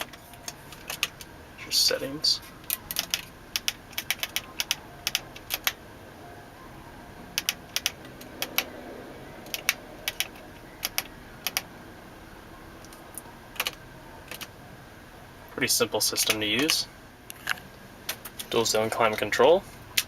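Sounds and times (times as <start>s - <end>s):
dashboard buttons clicking: 7.4s - 8.7s.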